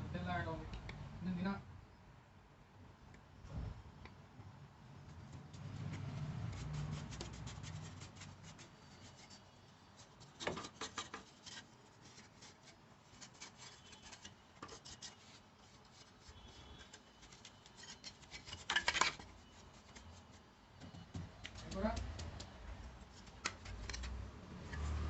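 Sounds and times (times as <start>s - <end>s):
rubbing and scraping: 5.2s - 20.6s.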